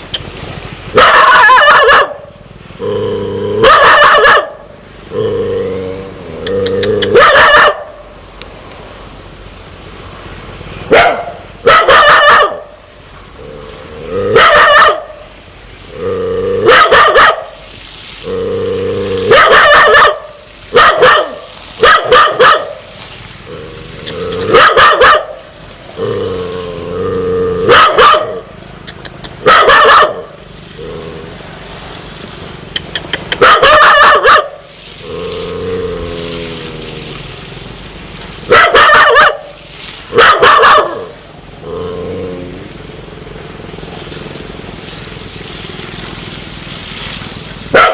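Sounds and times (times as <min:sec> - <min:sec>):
dog barking: 0:00.9 - 0:02.3, 0:03.6 - 0:04.6, 0:07.0 - 0:08.0, 0:10.9 - 0:12.8, 0:14.3 - 0:15.2, 0:16.6 - 0:17.6, 0:19.3 - 0:22.8, 0:24.4 - 0:25.4, 0:27.6 - 0:28.5, 0:29.4 - 0:30.4, 0:33.3 - 0:34.6, 0:38.5 - 0:41.2.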